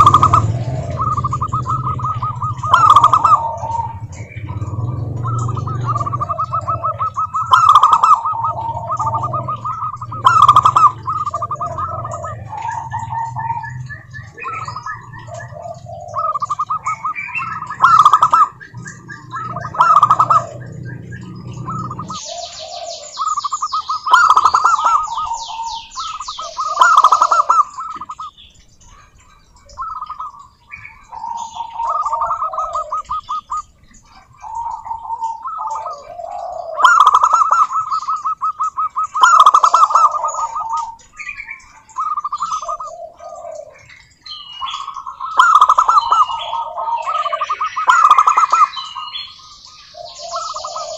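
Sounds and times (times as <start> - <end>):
low hum: 0.0 - 22.2
doves cooing: 0.0 - 50.9
high-pitched bird chirps: 0.0 - 50.9.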